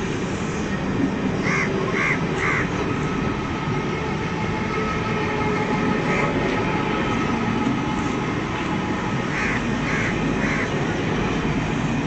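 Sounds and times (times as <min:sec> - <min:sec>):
train wheels rolling on rail: 0:00.0 - 0:12.0
crow cawing: 0:01.4 - 0:02.6, 0:09.3 - 0:10.7.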